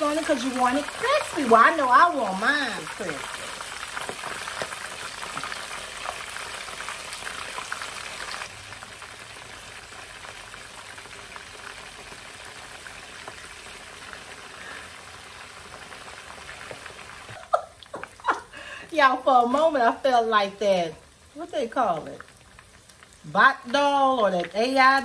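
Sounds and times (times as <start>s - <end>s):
liver frying in hot grease: 0.0s - 25.0s.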